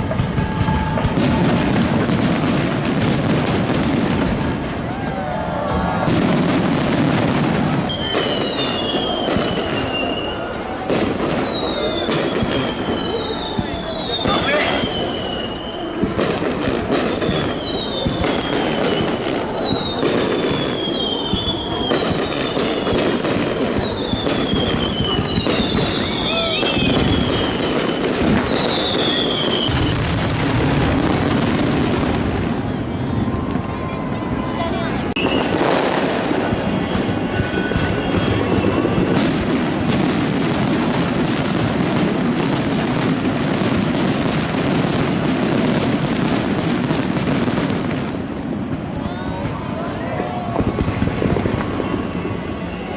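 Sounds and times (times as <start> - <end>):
fireworks whistles falling in pitch: 0.0 - 4.2, 5.7 - 48.1
dense background noise: 0.0 - 52.9
fireworks bangs: 0.0 - 52.9.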